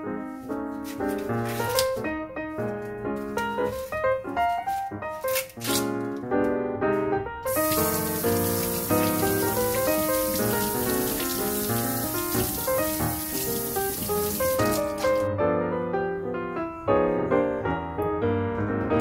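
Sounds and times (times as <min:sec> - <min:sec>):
piano music: 0:00.0 - 0:19.0
water running from a tap: 0:07.5 - 0:15.3.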